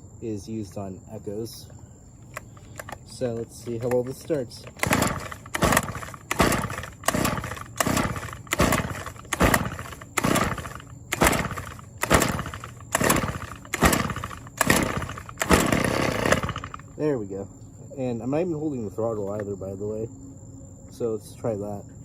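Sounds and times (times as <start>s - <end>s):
engine turning over: 2.2s - 17.0s
recoil starter pulls: 2.2s - 17.0s.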